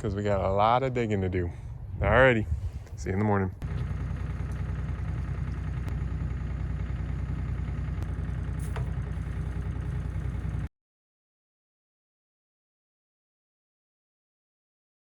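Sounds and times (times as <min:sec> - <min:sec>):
diesel engine idling: 0:03.6 - 0:10.7.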